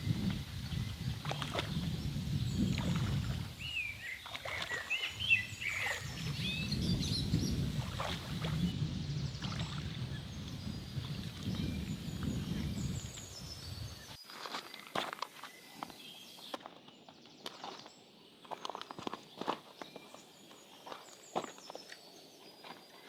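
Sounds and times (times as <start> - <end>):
bird chirping: 3.6 - 7.7.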